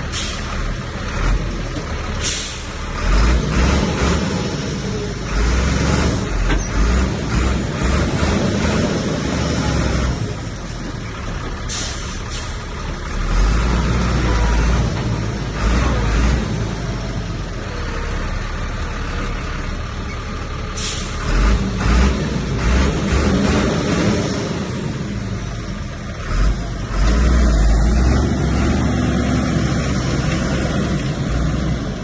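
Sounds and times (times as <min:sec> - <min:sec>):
heavy diesel engine rumbling: 0:00.0 - 0:32.0
short sharp hisses: 0:02.2 - 0:02.8, 0:11.7 - 0:12.6, 0:20.8 - 0:21.2.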